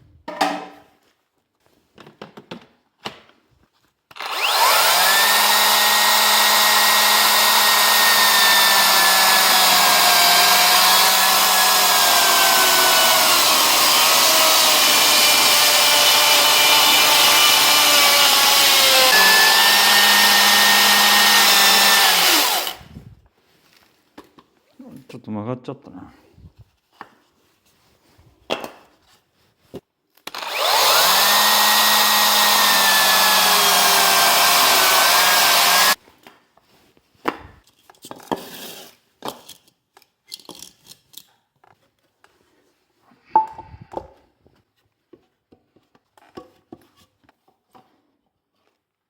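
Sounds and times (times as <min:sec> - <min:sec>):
power saw motor whining: 0:04.1 - 0:22.9, 0:30.3 - 0:36.0.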